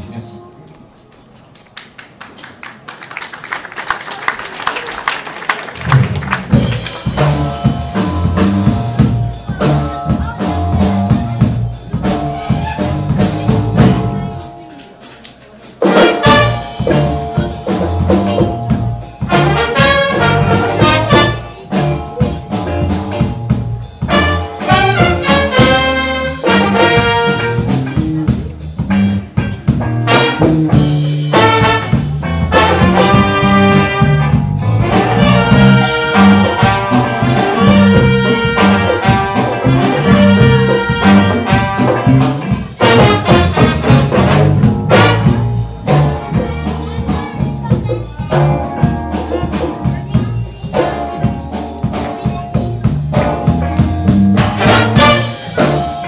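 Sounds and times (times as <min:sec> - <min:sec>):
live jazz-funk band: 0:04.9 - 0:56.0
trumpet and trombone horns: 0:15.8 - 0:17.1, 0:19.3 - 0:21.7, 0:24.1 - 0:27.9, 0:30.0 - 0:45.6, 0:54.4 - 0:56.0.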